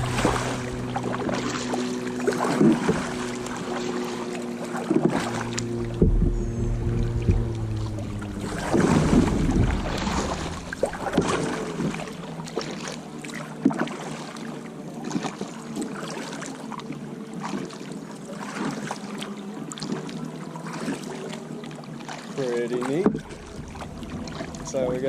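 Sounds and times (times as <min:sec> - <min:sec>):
faint steady hum: 0:00.0 - 0:13.4, 0:23.0 - 0:25.0
paddle strokes splashing: 0:00.0 - 0:25.0.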